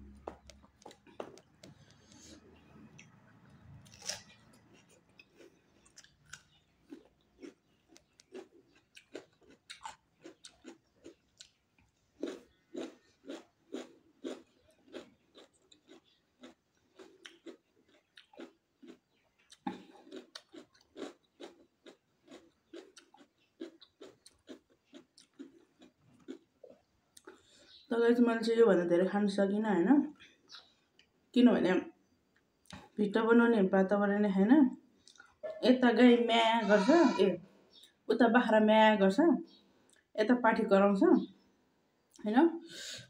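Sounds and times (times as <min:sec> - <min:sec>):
crunchy chewing of cucumber: 0:00.0 - 0:27.9.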